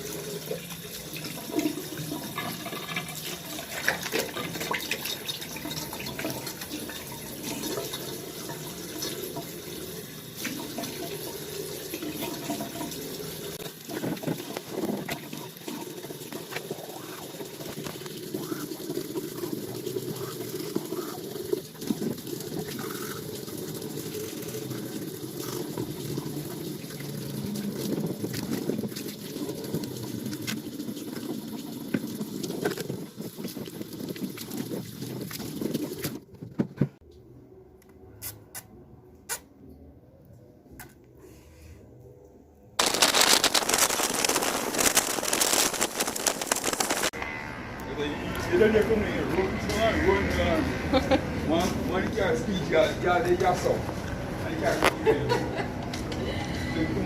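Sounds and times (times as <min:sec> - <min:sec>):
water running and splashing: 0:00.0 - 0:36.2, 0:42.8 - 0:47.2.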